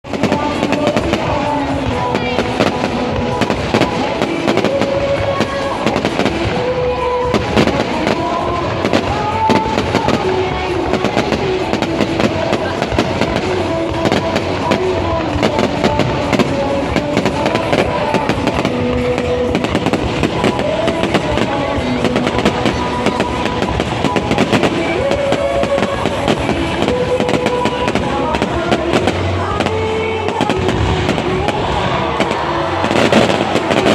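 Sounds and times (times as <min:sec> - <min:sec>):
fireworks bangs and crackles: 0:00.0 - 0:33.9
melodic music: 0:00.0 - 0:33.9.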